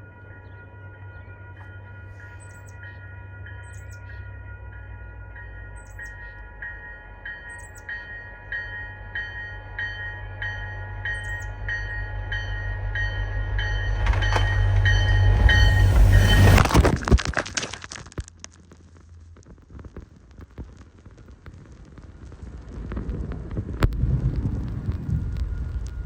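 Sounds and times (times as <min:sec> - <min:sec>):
train bell ringing: 0:00.0 - 0:16.6
locomotive rumble: 0:10.9 - 0:17.3
rush of train throwing snow: 0:14.0 - 0:17.0.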